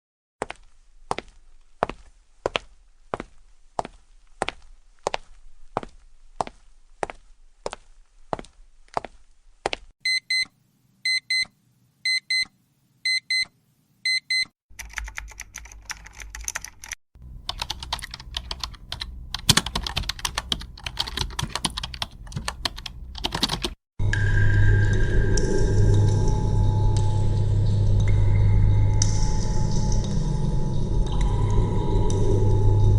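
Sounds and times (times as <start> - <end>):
alarm clock beeping: 10.1 - 10.5
fast typing on keyboard: 14.7 - 23.8.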